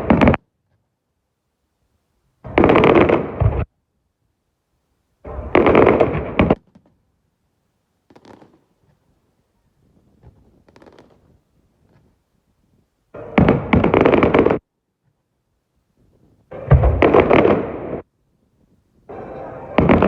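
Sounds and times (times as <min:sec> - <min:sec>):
fireworks exploding: 0:00.0 - 0:00.4, 0:02.5 - 0:03.7, 0:05.3 - 0:06.9, 0:08.1 - 0:09.0, 0:10.2 - 0:12.0, 0:13.2 - 0:14.6, 0:16.5 - 0:18.1, 0:19.1 - 0:20.0.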